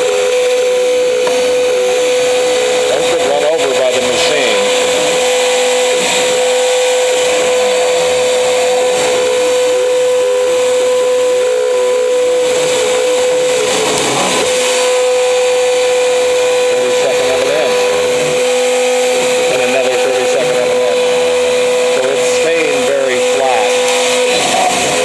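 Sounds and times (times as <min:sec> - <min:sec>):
cnc router spindle whine: 0:00.0 - 0:25.0.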